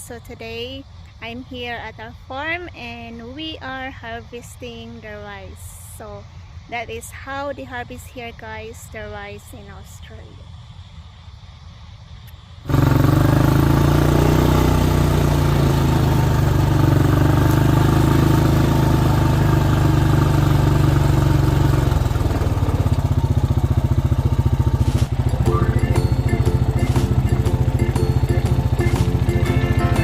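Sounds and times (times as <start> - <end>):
combine harvester running: 12.7 - 30.0.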